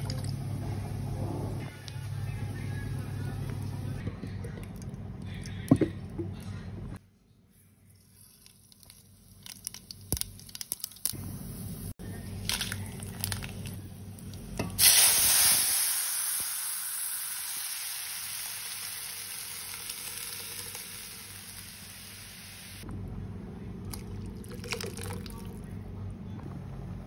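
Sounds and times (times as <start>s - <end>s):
food sizzling in hot oil: 14.7s - 22.8s.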